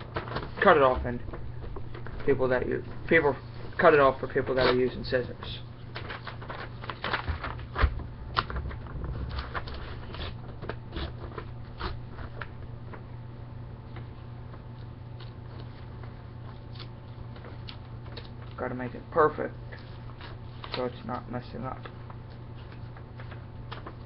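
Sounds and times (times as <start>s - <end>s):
paper tearing: 9.2s - 12.4s, 16.5s - 17.1s.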